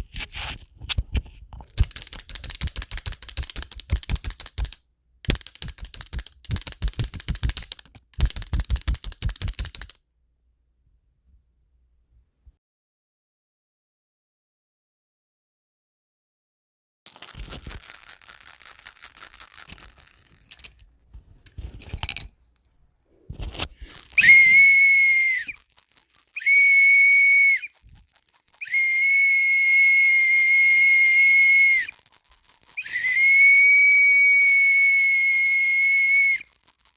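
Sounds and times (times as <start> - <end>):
toys rattling and clicking: 1.6 - 10.0, 17.1 - 22.3, 23.8 - 24.6, 25.3 - 26.8, 27.6 - 29.1, 30.0 - 33.4, 35.6 - 36.9
toys knocking: 1.7 - 10.0
toy whistle high notes: 23.9 - 36.8.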